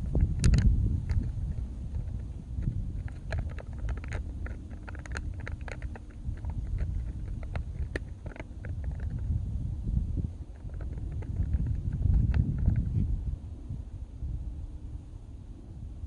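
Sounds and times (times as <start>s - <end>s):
sharp clicks and ticks: 0.0s - 9.4s, 10.5s - 12.9s
faint steady hum: 0.0s - 16.0s
wind rumbling on microphone: 0.0s - 16.0s.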